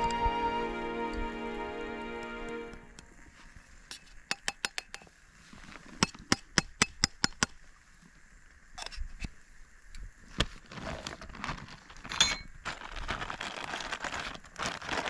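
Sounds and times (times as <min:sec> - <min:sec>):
cookware clinking: 0:12.2 - 0:12.5.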